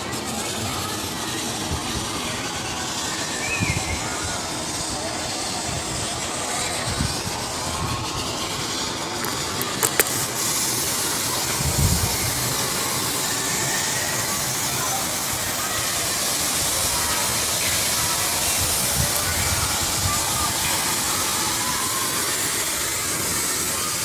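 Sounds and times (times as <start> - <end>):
flowing river water: 0.0 - 24.0
sharp clicks: 9.2 - 10.3.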